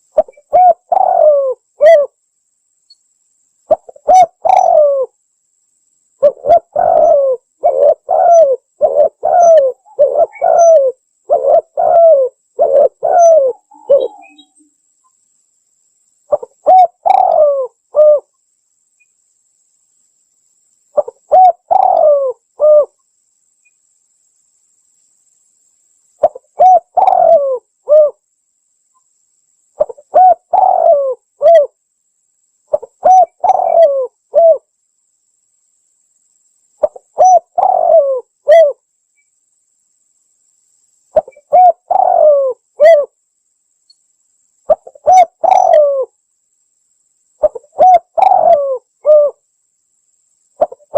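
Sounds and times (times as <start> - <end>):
dove cooing: 0.0 - 2.2, 3.7 - 5.2, 6.2 - 14.6, 16.3 - 18.3, 21.0 - 23.0, 26.2 - 28.2, 29.8 - 31.8, 32.7 - 34.6, 36.8 - 38.8, 41.2 - 43.1, 44.7 - 46.1, 47.4 - 49.4, 50.6 - 50.9.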